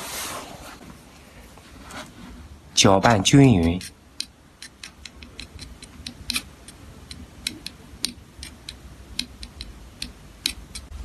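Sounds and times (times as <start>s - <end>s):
epoxy glue stirring clicks: 3.6s - 10.9s.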